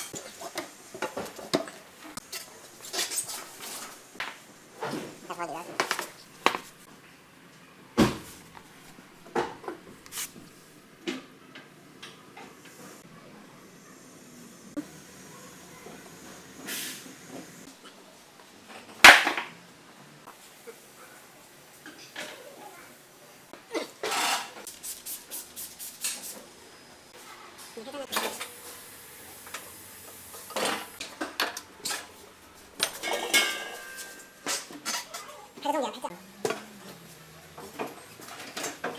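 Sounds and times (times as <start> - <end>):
hard objects clunking: 2.9 - 6.8.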